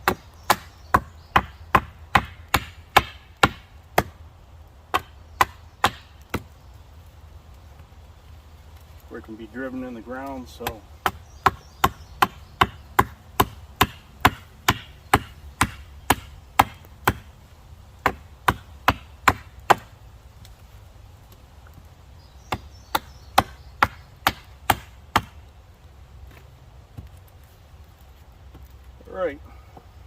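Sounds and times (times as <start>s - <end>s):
axe chopping wood: 0.0s - 4.2s, 4.9s - 6.5s, 10.5s - 17.3s, 18.0s - 19.9s, 22.5s - 25.4s.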